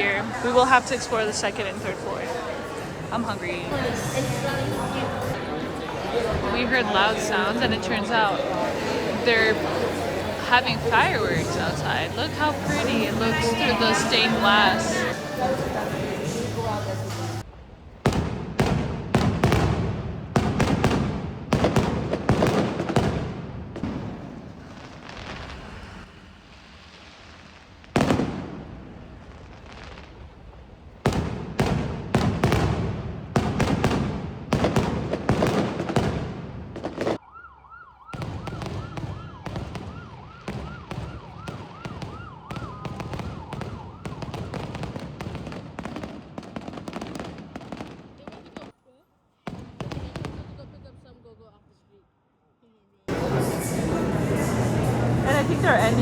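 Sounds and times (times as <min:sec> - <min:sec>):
fireworks banging: 0:00.0 - 0:37.2, 0:38.0 - 0:48.7, 0:53.1 - 0:56.0
siren wailing: 0:37.2 - 0:44.6.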